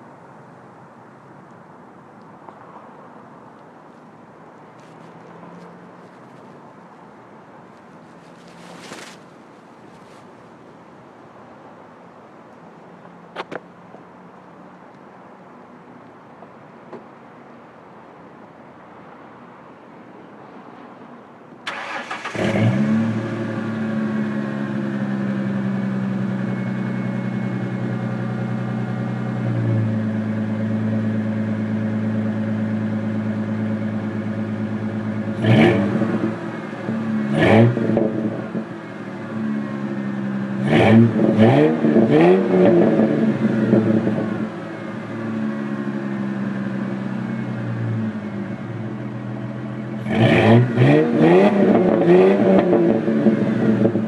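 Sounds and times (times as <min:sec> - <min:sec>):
car engine idling and revving: 0:21.7 - 0:54.0.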